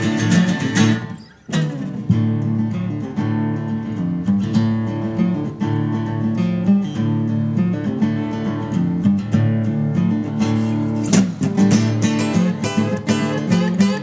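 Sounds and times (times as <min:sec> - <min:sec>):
strummed acoustic guitar: 0:00.0 - 0:14.0
country band playing: 0:10.6 - 0:14.0.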